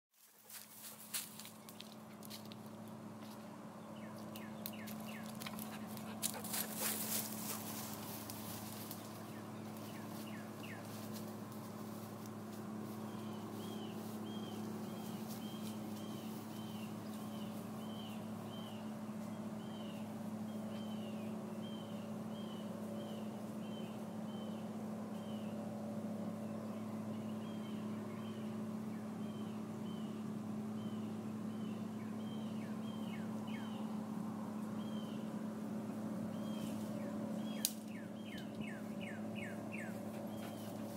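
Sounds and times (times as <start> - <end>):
rustling in brush: 0.2 - 3.5, 4.8 - 17.7
steady low hum: 0.2 - 40.9.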